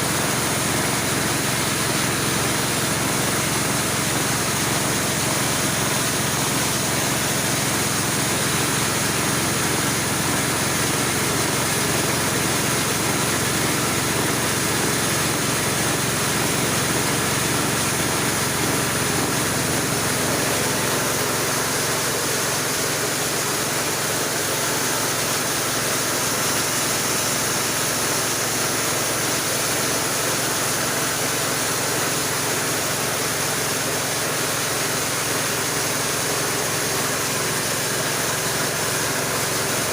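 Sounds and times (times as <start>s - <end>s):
grinding mill running: 0.0s - 39.9s.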